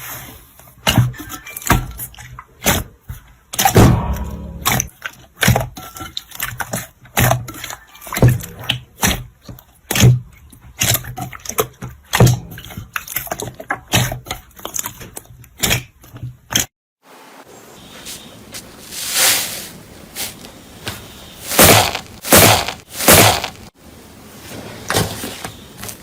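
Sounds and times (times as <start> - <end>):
hands squeezing slime: 21.5 - 23.6.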